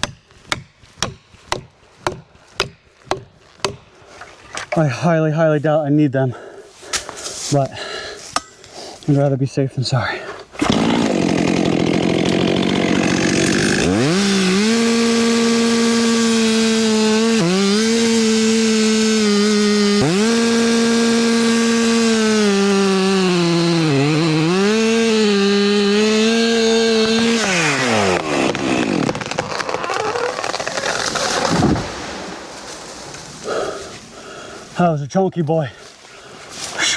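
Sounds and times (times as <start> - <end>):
tree crashing down: 10.6 - 15.6, 26.3 - 33.5
chainsaw revving and cutting: 10.6 - 32.7.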